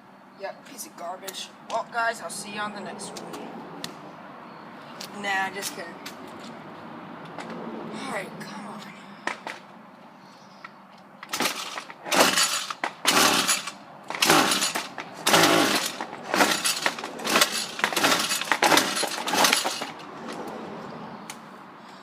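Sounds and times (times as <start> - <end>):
starter rope pulls rasping whirr: 11.2 - 20.6.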